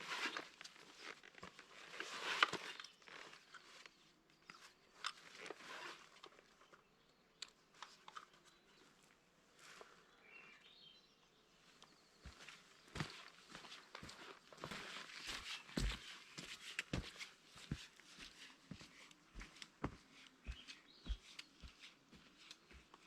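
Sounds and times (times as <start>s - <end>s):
crunching and rustling on forest ground: 0.0s - 6.7s.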